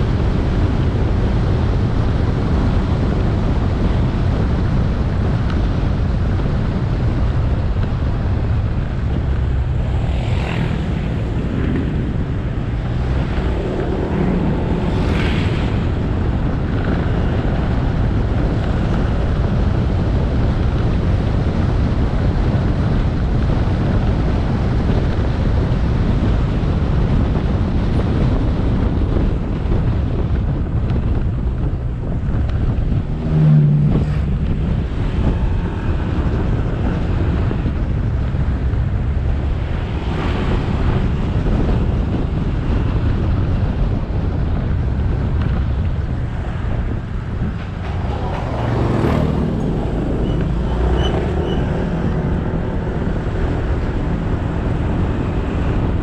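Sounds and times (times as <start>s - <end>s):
motorbike engine and road noise: 0.0s - 56.0s
wind rumble on microphone: 0.0s - 56.0s.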